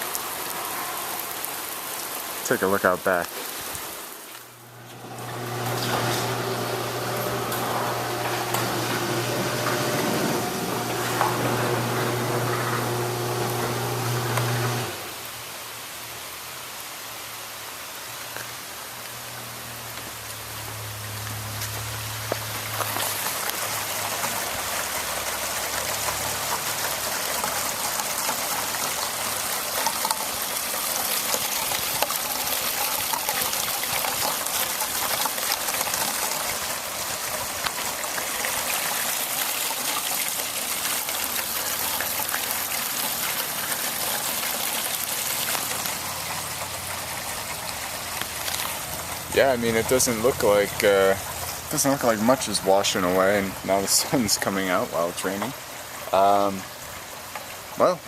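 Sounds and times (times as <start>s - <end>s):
heavy rain: 0.0s - 58.0s
water running and trickling: 0.0s - 58.0s.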